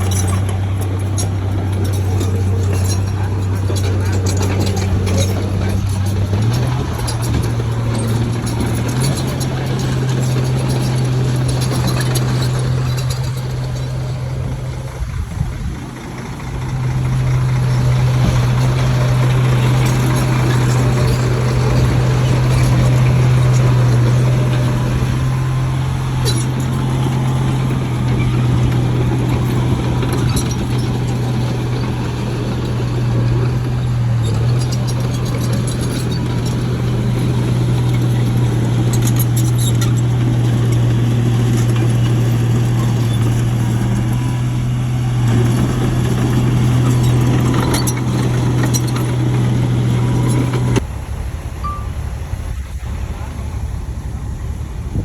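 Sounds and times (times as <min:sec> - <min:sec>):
heavy diesel machinery engine hum: 0:00.0 - 0:55.0.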